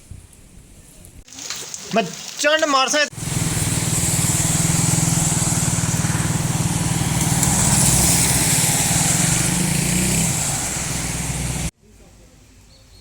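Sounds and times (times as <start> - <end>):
rain hissing: 1.3 - 11.7
small engine running: 3.1 - 11.7.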